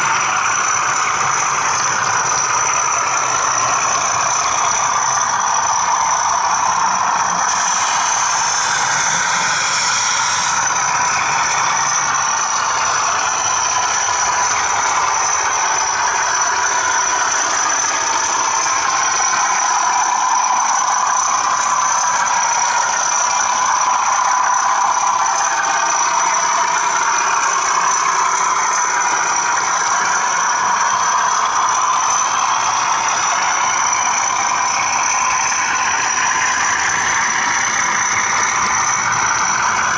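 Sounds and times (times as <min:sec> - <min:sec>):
diesel engine sound from small speaker: 0:00.0 - 0:39.9
model wheels rattling on track: 0:00.0 - 0:39.9
steady high whine: 0:00.0 - 0:39.9.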